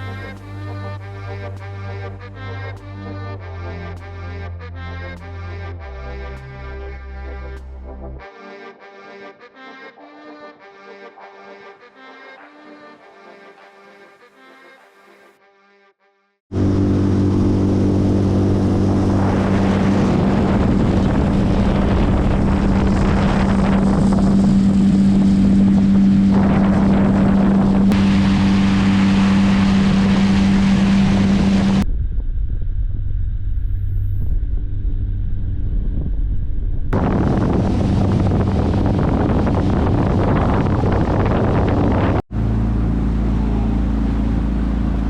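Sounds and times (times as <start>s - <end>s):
music: 0.0s - 16.4s
outboard motor running: 16.5s - 31.8s, 37.0s - 45.0s
wind noise on microphone: 16.6s - 42.8s.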